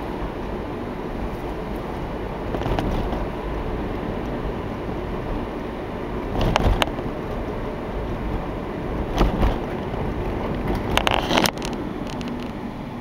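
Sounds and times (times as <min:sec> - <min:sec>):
car engine and road noise: 0:00.0 - 0:13.0
sharp knocks and rattles: 0:09.1 - 0:12.6.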